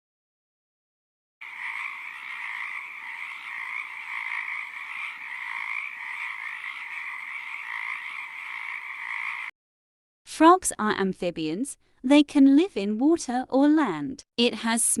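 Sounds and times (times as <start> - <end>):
frogs calling: 1.4 - 9.5.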